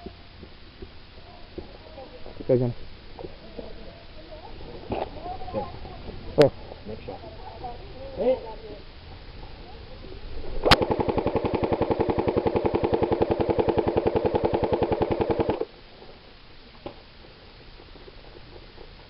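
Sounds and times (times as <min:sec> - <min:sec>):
airsoft gun full-auto burst: 0:10.6 - 0:15.7
gearbox whirr: 0:10.6 - 0:15.7.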